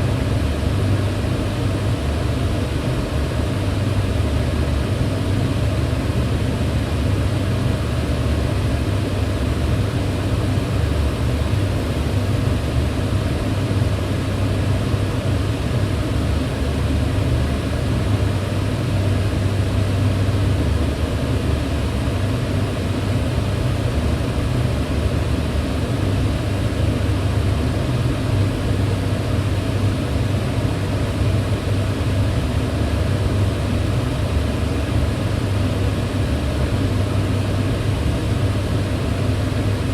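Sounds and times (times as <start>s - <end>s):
range hood fan whooshing: 0.0s - 39.9s.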